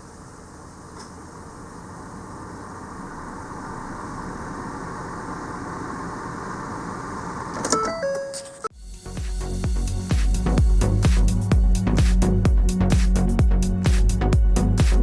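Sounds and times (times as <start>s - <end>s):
car engine running: 1.5s - 7.6s.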